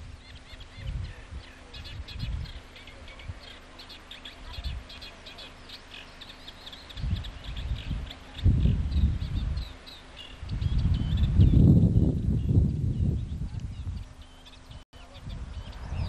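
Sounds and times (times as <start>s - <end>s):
wind thumps on microphone: 0.0s - 3.4s, 7.0s - 9.7s, 10.4s - 16.0s
small birds chirping: 0.0s - 16.0s.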